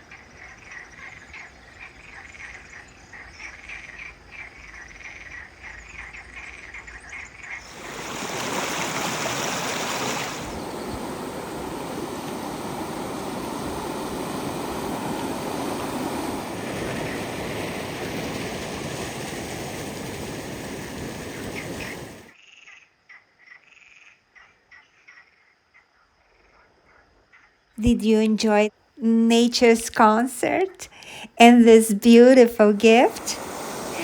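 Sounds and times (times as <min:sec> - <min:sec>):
frogs calling: 0:00.0 - 0:18.8, 0:20.4 - 0:27.8, 0:30.6 - 0:31.3
flowing water rushing: 0:07.6 - 0:22.3, 0:32.6 - 0:34.0.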